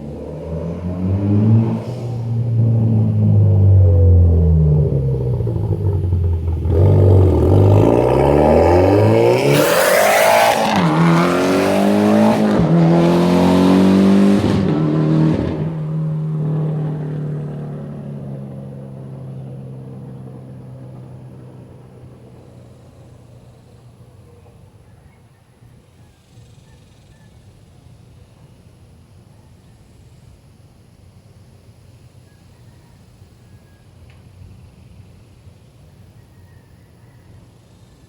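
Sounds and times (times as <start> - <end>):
car engine at full throttle: 0.0 - 23.9.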